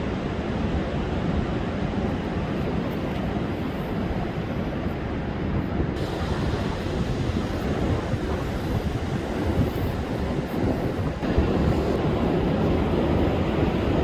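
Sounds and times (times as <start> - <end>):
wind rumbling on microphone: 0.0 - 14.0
storm surf breaking: 5.8 - 14.0.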